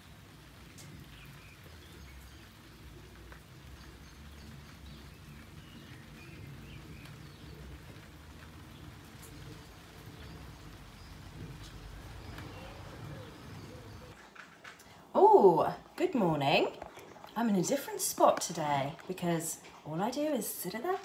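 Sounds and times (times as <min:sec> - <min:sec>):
birds chirping in trees: 0:00.0 - 0:14.2
low outdoor rumble: 0:00.0 - 0:14.2.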